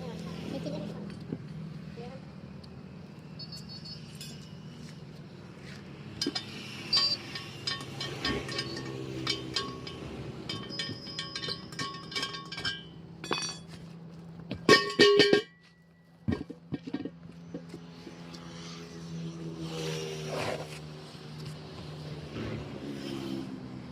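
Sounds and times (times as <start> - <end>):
metal tools clinking: 3.8 - 4.7, 6.1 - 17.7.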